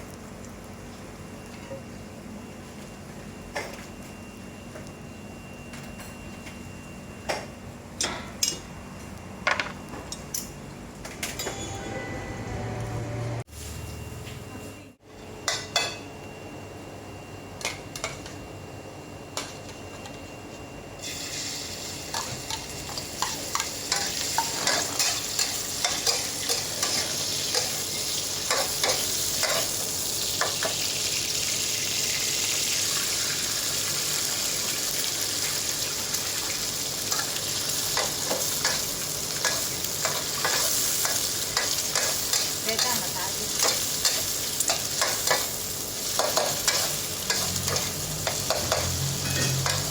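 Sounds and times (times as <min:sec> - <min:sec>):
batter sizzling in oil: 0:21.0 - 0:49.9.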